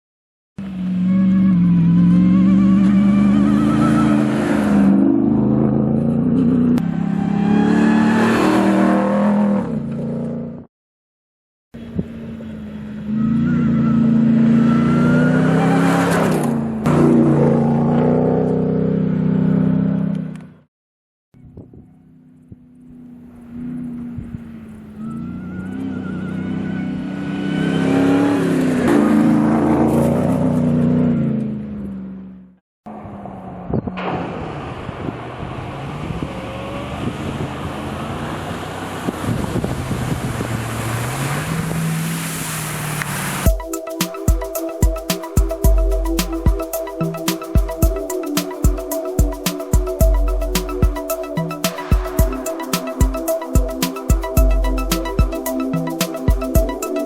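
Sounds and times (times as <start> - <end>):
car engine revving: 0.6 - 10.7, 11.8 - 20.5, 22.1 - 57.0.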